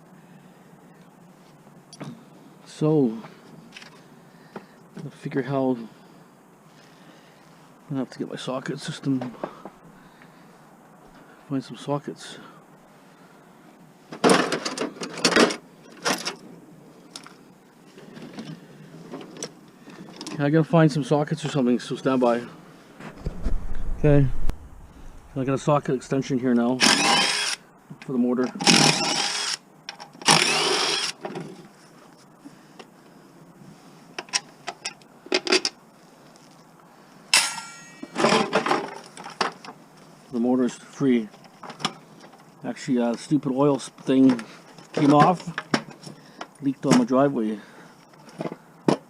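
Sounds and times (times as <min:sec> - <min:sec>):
power drill spinning bolts: 0:26.8 - 0:27.6, 0:28.5 - 0:31.2
metal tools clattering: 0:37.4 - 0:38.6.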